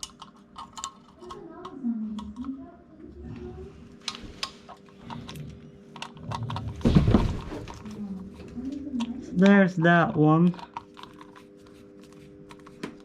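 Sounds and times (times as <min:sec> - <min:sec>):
rustling thump: 0:06.8 - 0:07.8.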